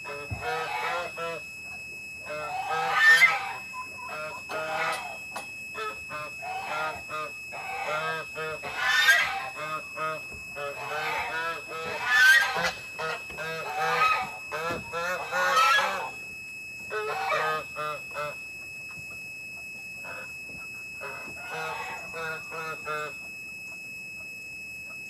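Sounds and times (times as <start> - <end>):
faint steady high tone: 0.0 - 25.0
poultry harsh calls: 0.1 - 1.4, 2.3 - 5.2, 5.8 - 16.2, 16.9 - 18.4, 20.0 - 20.3, 21.0 - 23.1.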